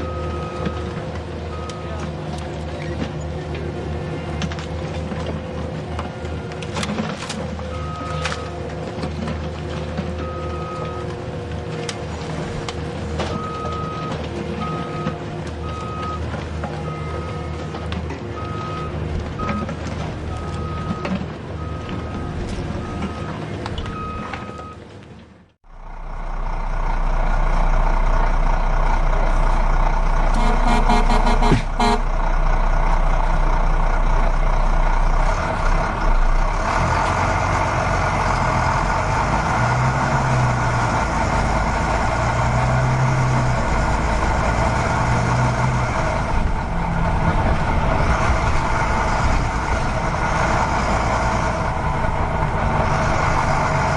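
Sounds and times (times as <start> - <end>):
truck reversing alarm beeping: 0.0 - 2.0, 7.7 - 8.5, 10.2 - 11.1, 13.3 - 24.8, 30.4 - 32.1
truck engine running: 0.0 - 53.9.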